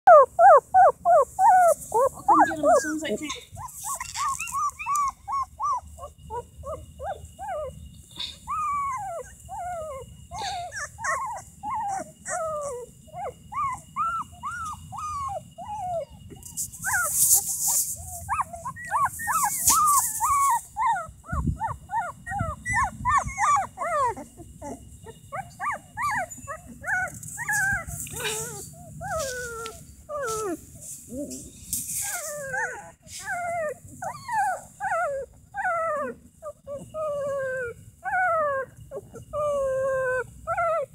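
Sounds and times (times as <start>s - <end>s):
puppies whining and whimpering: 0.1s - 40.9s
scratchy rustles: 16.4s - 18.4s, 19.0s - 20.6s, 27.1s - 33.4s.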